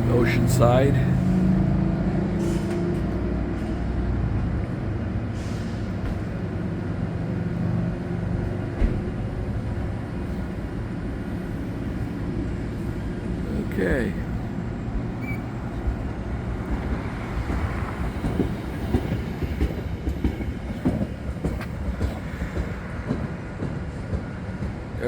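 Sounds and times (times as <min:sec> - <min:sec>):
diesel locomotive droning: 0:00.0 - 0:25.0.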